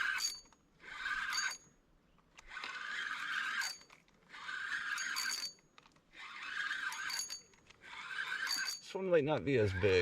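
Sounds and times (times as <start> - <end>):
fishing reel whirring: 0.0 - 1.6, 2.5 - 5.6, 6.2 - 8.8
faint ring of reel: 0.0 - 1.8, 2.7 - 5.7, 6.3 - 9.0.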